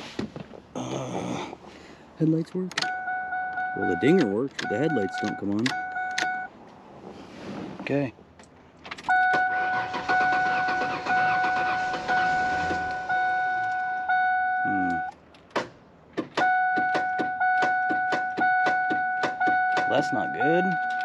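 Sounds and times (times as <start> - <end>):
dashboard warning chime: 2.8 - 6.5, 9.1 - 15.2, 16.4 - 21.0.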